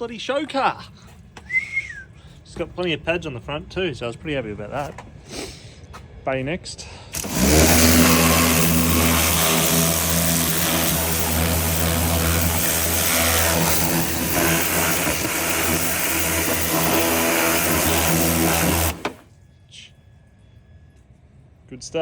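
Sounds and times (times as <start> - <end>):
pressure washer spraying water: 7.2 - 19.2.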